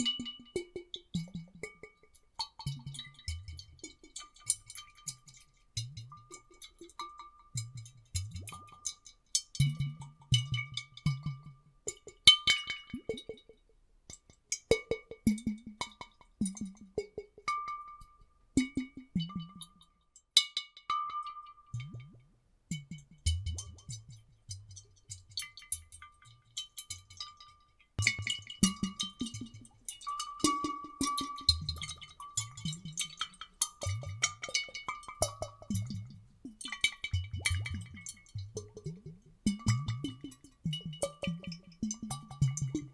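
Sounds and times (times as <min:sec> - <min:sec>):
water sloshing in glass bottles: 0:23.5 - 0:42.9.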